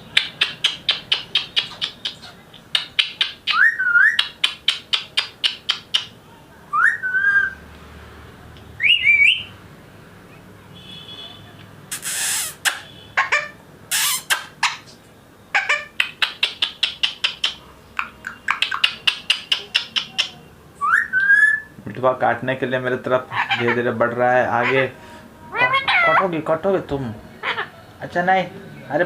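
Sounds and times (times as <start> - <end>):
parakeet chirping: 0.0 - 6.2, 11.9 - 21.7, 23.2 - 26.4, 27.4 - 27.9
harsh parakeet squawk: 11.9 - 15.0, 15.6 - 17.6, 23.3 - 23.9, 24.5 - 26.3, 27.4 - 27.8.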